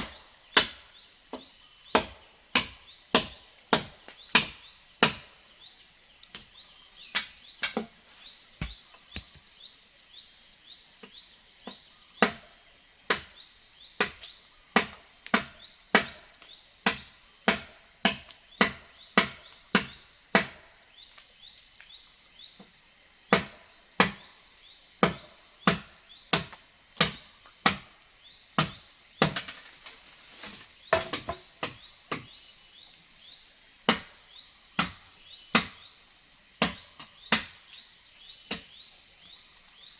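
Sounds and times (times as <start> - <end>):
chopping blows into wood: 0.0 - 5.4, 8.6 - 9.4, 14.0 - 16.2, 16.8 - 20.6, 34.8 - 35.9
insects chirring: 0.0 - 39.9.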